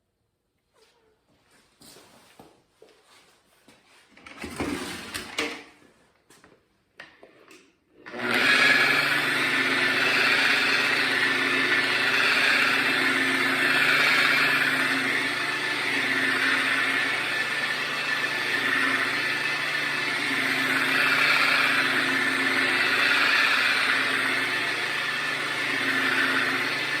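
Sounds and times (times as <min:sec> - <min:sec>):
electric polisher running: 0:08.0 - 0:27.0.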